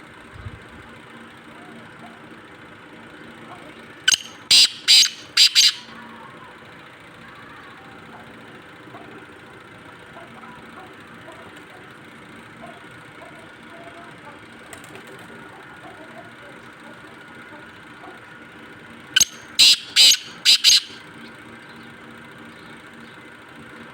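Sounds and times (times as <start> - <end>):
steady background hum: 0.0 - 23.9
faint short chirps: 4.1 - 5.9, 19.2 - 21.0.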